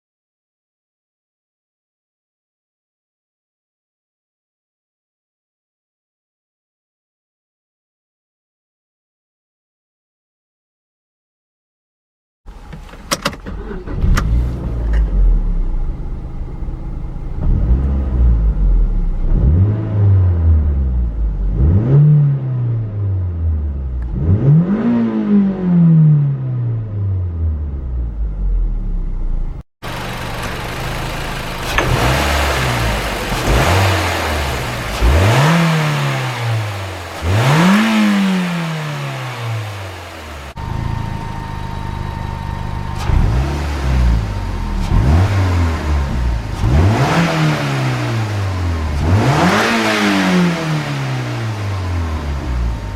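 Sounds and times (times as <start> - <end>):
car engine revving: 12.5 - 52.9.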